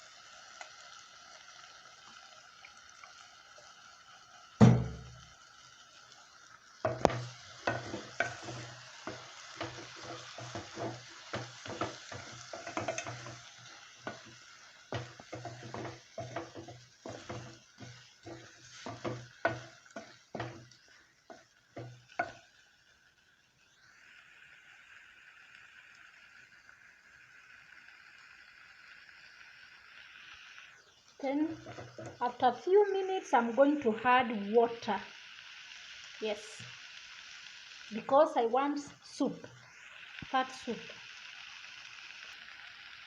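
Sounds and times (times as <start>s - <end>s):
chicken frying: 0.0s - 43.0s
spoon stirring and scraping pot: 6.8s - 22.5s, 31.5s - 32.2s.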